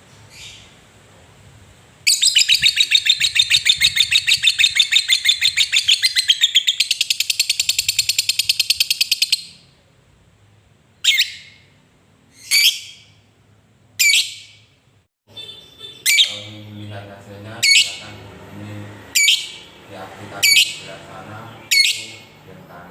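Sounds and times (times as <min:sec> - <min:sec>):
bird sharp calls: 0:02.1 - 0:09.6, 0:15.4 - 0:16.7, 0:17.6 - 0:18.2, 0:19.1 - 0:19.7, 0:20.4 - 0:22.4
lovebird chattering: 0:02.1 - 0:09.6, 0:12.4 - 0:13.1, 0:15.9 - 0:16.7, 0:17.6 - 0:18.2, 0:19.1 - 0:19.7, 0:20.4 - 0:22.3.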